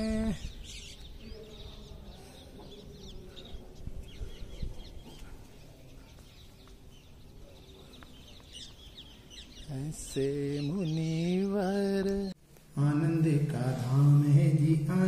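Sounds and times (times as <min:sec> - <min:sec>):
small birds chirping: 0:00.0 - 0:12.4.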